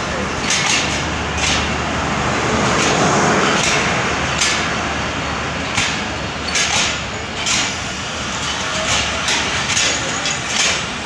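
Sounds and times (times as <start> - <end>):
rumble of train wheels on track: 0.0 - 11.0
sharp wheel clacks: 5.7 - 7.8, 8.5 - 11.0.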